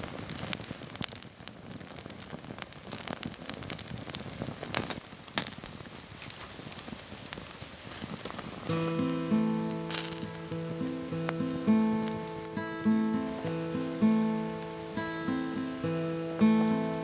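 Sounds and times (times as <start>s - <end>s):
campfire crackling and popping: 0.0s - 17.0s
music: 8.7s - 17.0s.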